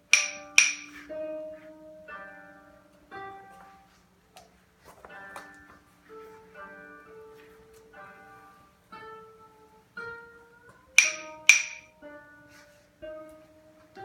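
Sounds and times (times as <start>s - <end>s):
plucked string instrument notes: 5.0s - 12.4s
sharp loud chords: 7.9s - 12.2s.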